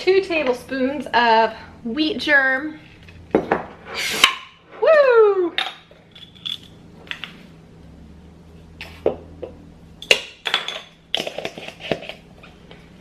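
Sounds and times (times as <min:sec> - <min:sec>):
utensils and dishes clinking: 0:05.6 - 0:07.4, 0:10.0 - 0:12.2.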